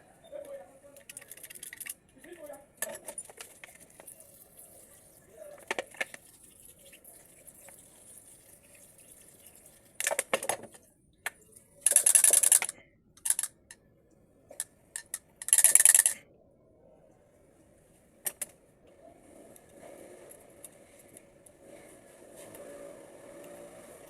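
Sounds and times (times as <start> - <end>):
small metal parts clinking: 1.0 - 2.0, 11.8 - 13.6, 14.6 - 16.2.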